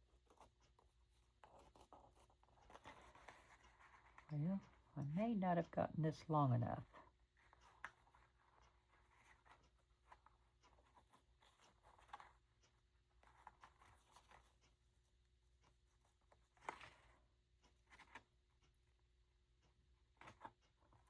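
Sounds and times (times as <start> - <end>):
small ticks: 0.0 - 5.0, 6.8 - 21.0
paper and lace rustling: 0.0 - 5.3, 6.8 - 14.8.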